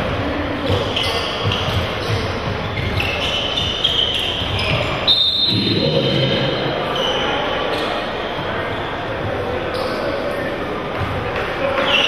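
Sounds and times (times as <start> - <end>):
ball bouncing on court: 0.0 - 6.5
sneakers squeaking: 0.0 - 12.0.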